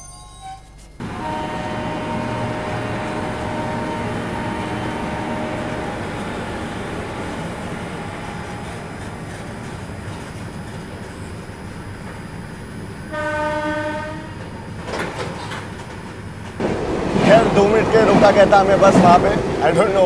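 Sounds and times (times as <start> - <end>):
locomotive whine: 0.0 - 20.0
train wheels rumbling on rail: 1.0 - 20.0.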